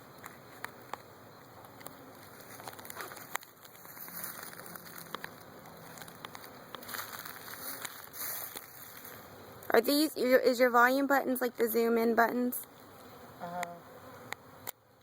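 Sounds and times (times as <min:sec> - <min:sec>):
bee swarm buzzing: 0:00.0 - 0:15.0
light clicks and crackles: 0:00.2 - 0:09.1.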